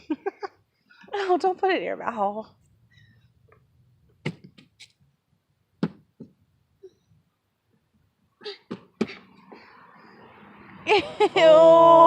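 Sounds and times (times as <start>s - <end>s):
sharp knocks: 5.8s - 6.4s.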